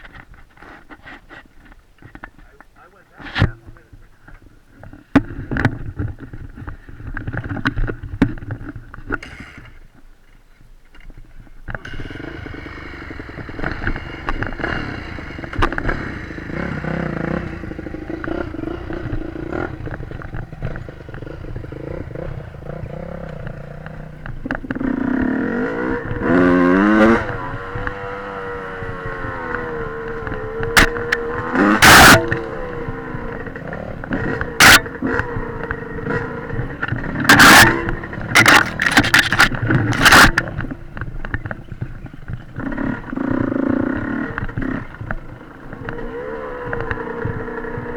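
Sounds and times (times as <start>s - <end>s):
dirt bike engine revving: 11.7s - 47.9s.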